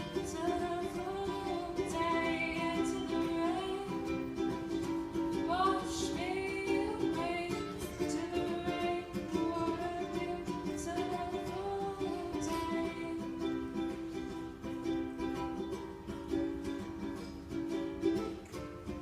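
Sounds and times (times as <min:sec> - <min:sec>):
woman singing: 0:00.0 - 0:14.1
strummed acoustic string instrument: 0:00.0 - 0:19.0.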